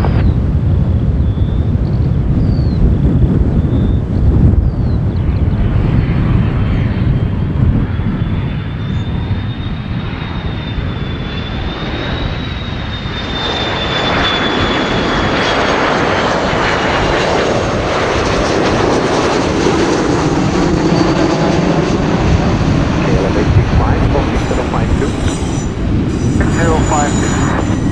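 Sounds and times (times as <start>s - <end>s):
jet engine rumble: 0.0s - 27.9s
jet engines whining: 0.0s - 27.9s.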